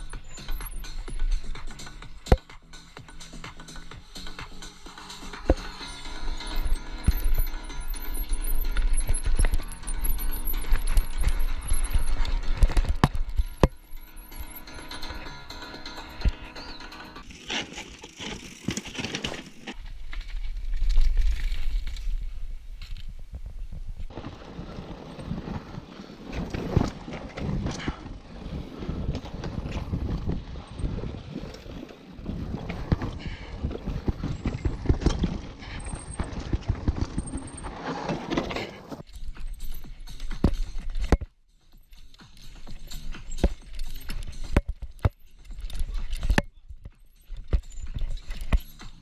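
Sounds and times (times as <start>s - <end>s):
mountain bike rattling over rocks: 4.4s - 23.1s, 24.0s - 41.2s, 41.8s - 49.0s
wind rumble on microphone: 19.9s - 37.6s.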